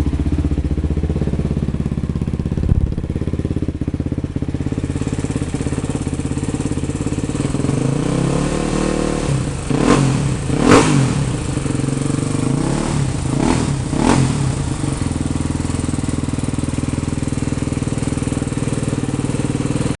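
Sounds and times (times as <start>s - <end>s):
motorcycle engine idling: 0.0s - 20.0s
motorcycle throttle blips: 0.0s - 20.0s.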